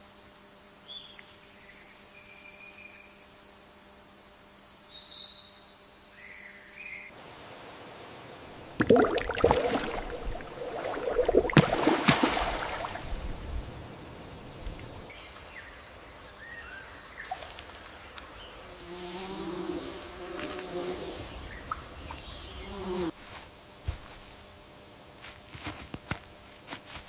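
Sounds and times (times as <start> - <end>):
insect buzzing: 0.0 - 7.1, 8.9 - 15.1, 17.6 - 24.4
rainforest ambience: 0.0 - 27.0.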